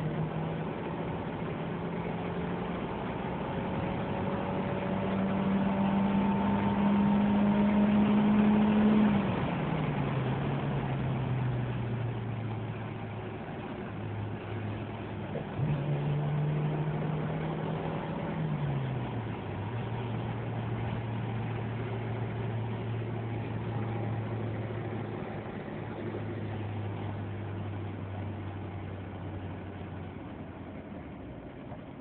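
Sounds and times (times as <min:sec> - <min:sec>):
car engine running hard: 0:00.0 - 0:32.0
road noise: 0:00.0 - 0:32.0.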